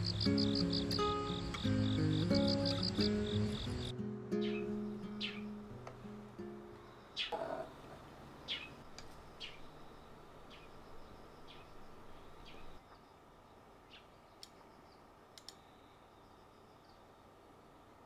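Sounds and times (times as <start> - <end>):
small birds chirping: 0.0 - 5.7, 6.8 - 17.3
sharp ticks: 15.4 - 15.6.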